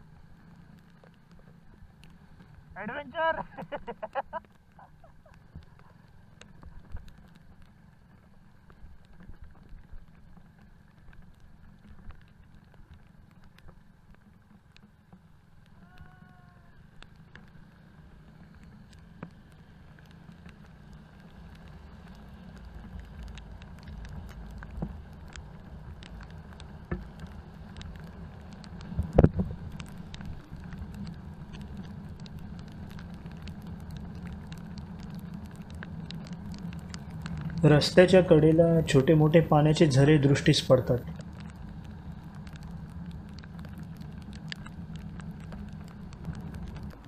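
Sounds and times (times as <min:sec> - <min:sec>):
muffled motorcycle engine and road: 0:00.0 - 0:47.0
raindrops ticking on camera: 0:00.0 - 0:47.0.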